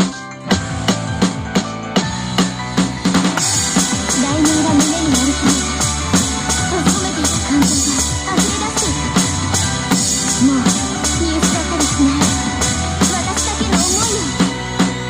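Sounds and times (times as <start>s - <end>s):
drum kit playing steady beat: 0.0s - 15.0s
pop song with singing: 3.8s - 5.8s, 6.4s - 15.0s.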